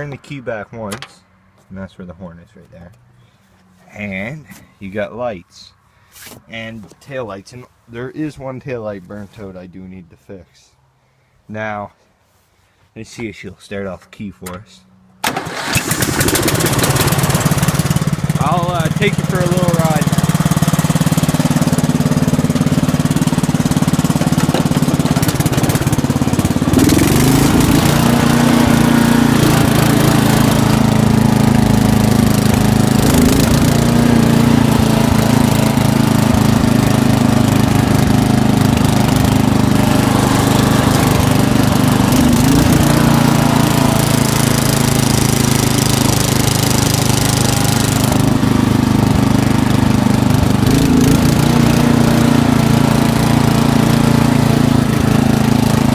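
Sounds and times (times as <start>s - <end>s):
lawn tractor engine running: 14.4s - 55.9s.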